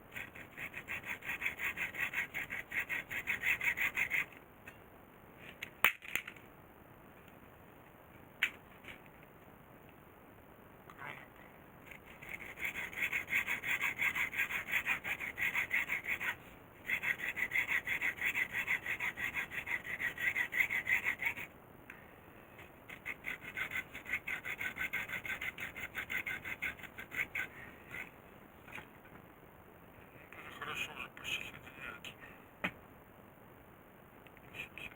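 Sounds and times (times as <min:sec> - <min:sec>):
hand tool rasping: 0:00.1 - 0:04.4, 0:11.9 - 0:21.5, 0:22.9 - 0:28.1.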